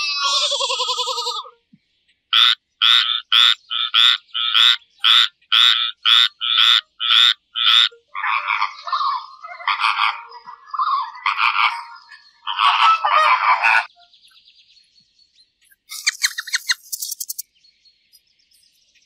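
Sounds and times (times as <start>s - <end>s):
sheep bleating: 0.0s - 1.5s
animal call: 2.4s - 13.9s
frog croaking: 2.4s - 13.9s.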